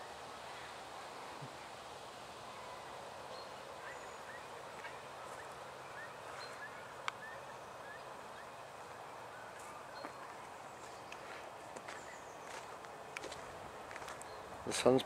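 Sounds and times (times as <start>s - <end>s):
faint bird chirps: 2.4s - 12.8s.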